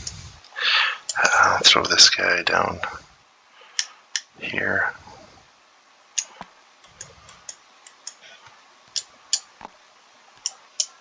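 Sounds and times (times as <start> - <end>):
computer mouse clicking: 6.2 - 8.2, 10.4 - 11.0.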